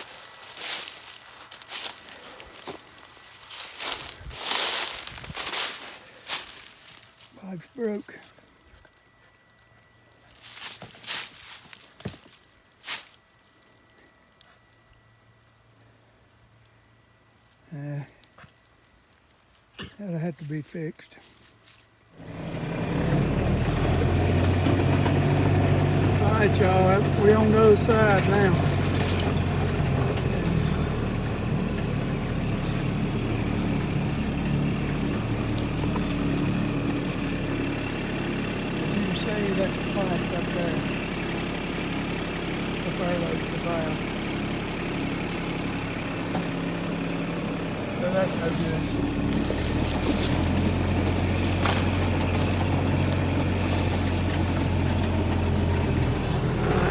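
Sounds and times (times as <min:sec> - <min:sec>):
motor engine running: 0:00.0 - 0:06.7, 0:22.1 - 0:56.9
rustling footsteps in grass: 0:00.0 - 0:07.8, 0:10.1 - 0:13.9, 0:21.2 - 0:22.0, 0:26.2 - 0:40.2, 0:45.0 - 0:56.6.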